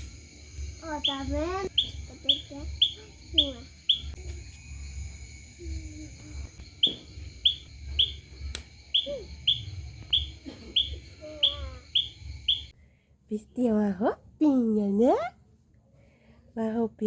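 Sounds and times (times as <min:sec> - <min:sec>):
bird chirping: 0:00.9 - 0:04.2, 0:06.5 - 0:12.7.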